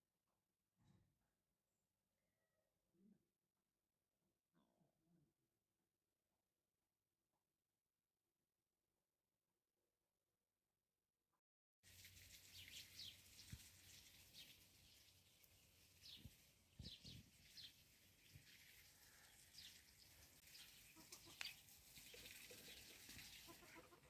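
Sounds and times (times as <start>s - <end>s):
small birds chirping: 11.9s - 24.0s.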